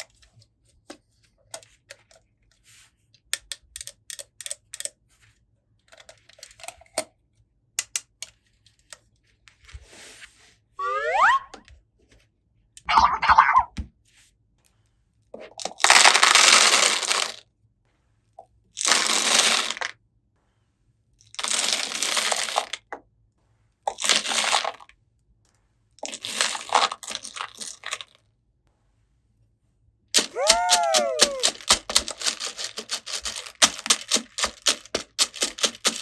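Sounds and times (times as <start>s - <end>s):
cartoon sound effect sliding down: 10.8s - 11.6s, 12.9s - 13.7s, 30.3s - 31.5s
plastic packaging crinkling: 30.2s - 36.0s.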